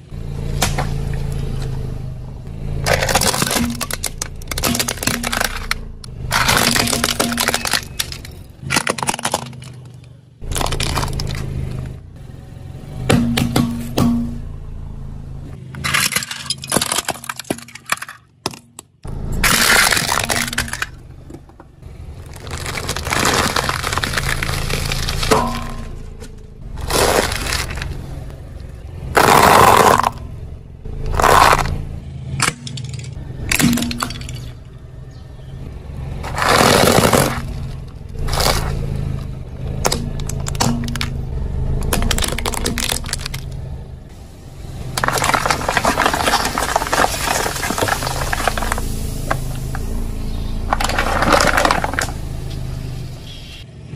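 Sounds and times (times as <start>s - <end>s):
low engine hum: 0.0s - 15.9s, 19.0s - 53.9s
tyre crushing brittle objects: 2.8s - 12.0s, 15.6s - 21.4s, 22.0s - 28.3s, 29.1s - 30.2s, 31.1s - 31.8s, 32.4s - 34.6s, 36.2s - 41.2s, 41.8s - 43.7s, 44.9s - 52.7s.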